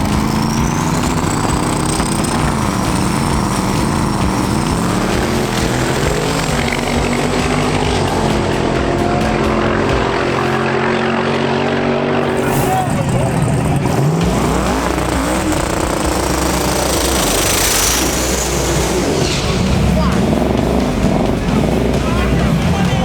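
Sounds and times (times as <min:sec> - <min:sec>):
race car engines running: 0:00.0 - 0:23.0
thin high whine: 0:12.1 - 0:22.9.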